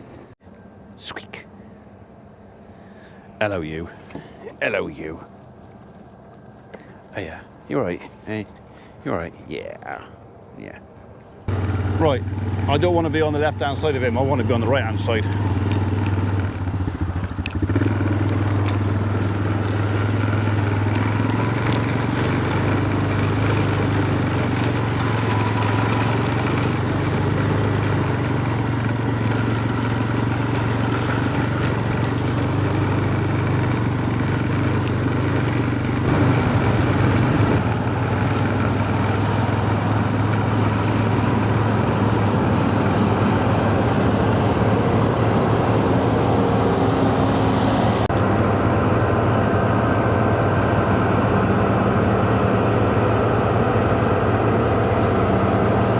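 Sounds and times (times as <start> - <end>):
vehicle engine running: 11.4 - 55.9.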